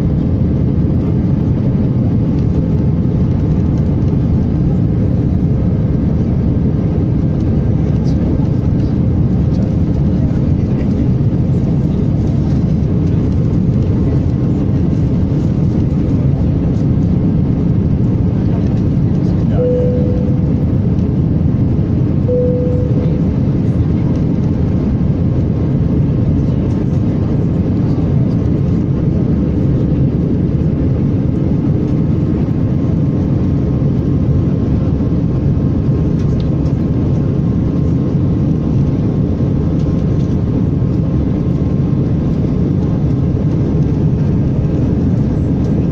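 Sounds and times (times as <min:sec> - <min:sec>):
airliner cabin engine roar: 0:00.0 - 0:45.9
short single tone: 0:19.6 - 0:20.6, 0:22.3 - 0:23.5.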